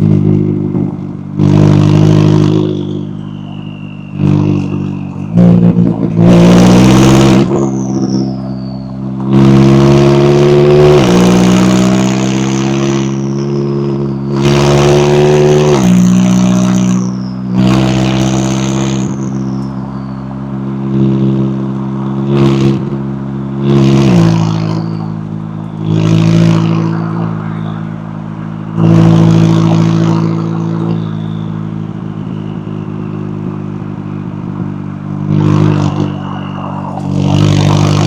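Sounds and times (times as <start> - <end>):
car accelerating through gears: 0.0 - 38.0
high falling whistle: 2.7 - 5.4, 26.6 - 28.1, 35.6 - 38.0.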